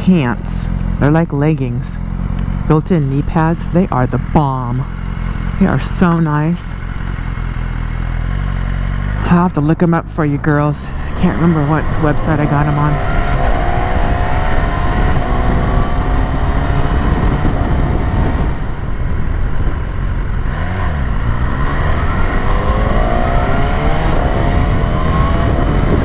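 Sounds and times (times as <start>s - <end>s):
motorcycle engine accelerating: 0.0s - 26.0s
wind rush on microphone: 10.9s - 26.0s.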